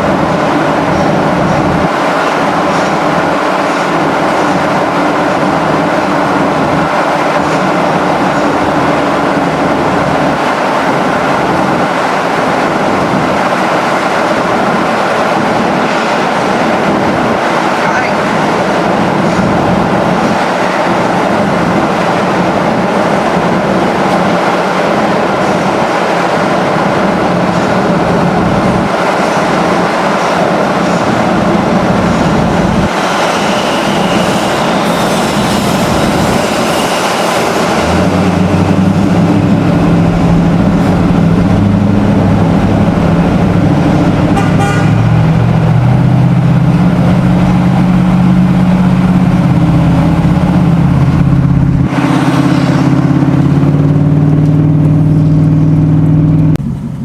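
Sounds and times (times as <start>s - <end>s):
vehicle noise: 0.0s - 57.0s.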